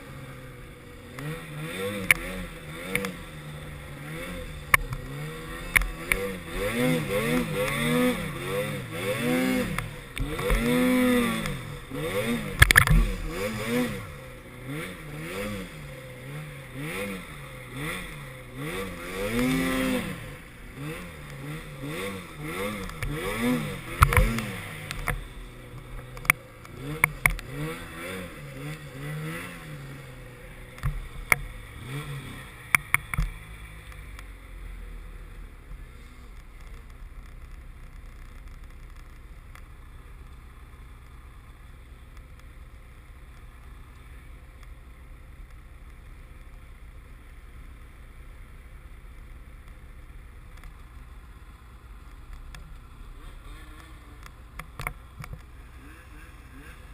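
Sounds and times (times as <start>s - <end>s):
snowmobile engine revving: 0.0s - 36.6s, 52.2s - 56.9s.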